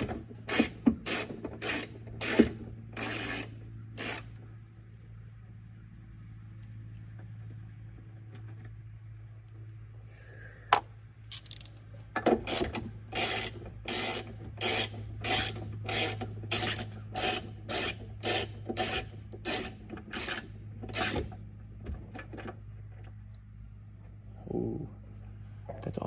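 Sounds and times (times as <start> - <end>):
wrench rasping on nut: 0.0 - 4.3, 12.4 - 21.3.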